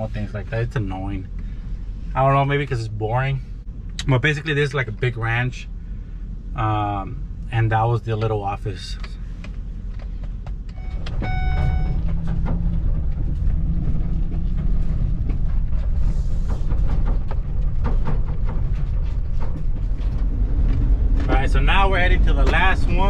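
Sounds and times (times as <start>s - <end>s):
vehicle engine rumbling: 0.0s - 23.0s
short electronic chime: 10.8s - 12.0s.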